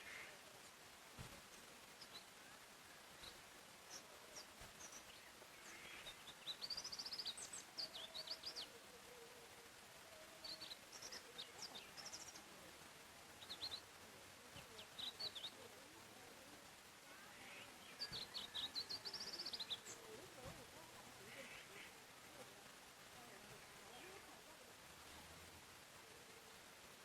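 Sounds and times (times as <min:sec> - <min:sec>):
soft ambient hiss: 0:00.0 - 0:27.0
songbirds chirping and trilling: 0:00.0 - 0:27.0.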